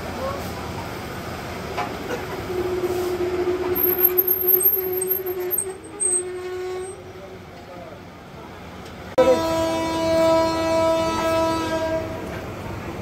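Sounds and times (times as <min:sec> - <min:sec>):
train coaches rolling past: 0:00.0 - 0:13.0
mid-pitched squealing tone: 0:02.4 - 0:07.1
short high squeaks: 0:02.8 - 0:07.0.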